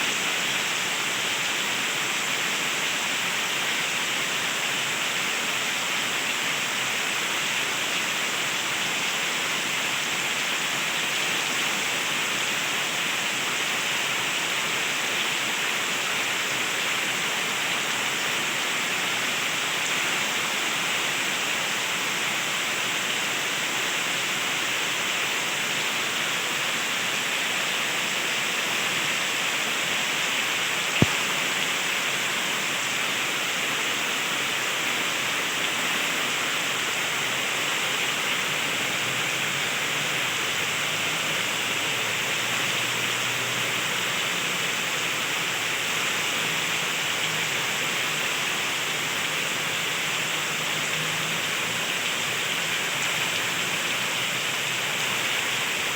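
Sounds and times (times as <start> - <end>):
heavy rain pouring: 0.3 - 55.9
sharp click: 31.0 - 31.3.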